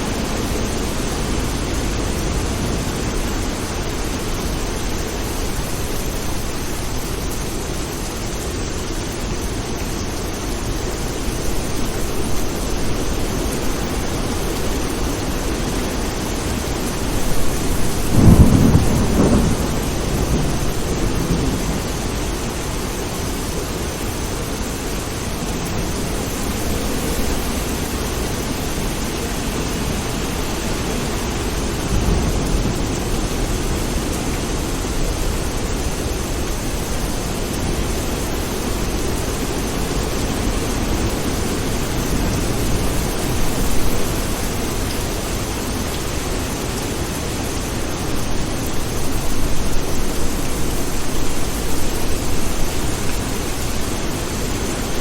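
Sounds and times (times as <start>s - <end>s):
steady rain falling: 0.0s - 55.0s
low rolling thunder: 11.8s - 23.6s, 29.4s - 45.3s.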